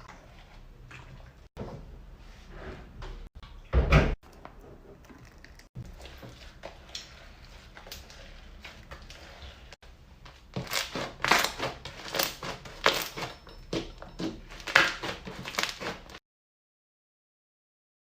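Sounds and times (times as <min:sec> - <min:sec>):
slime squishing and crackling: 0:10.3 - 0:13.4, 0:14.5 - 0:16.2.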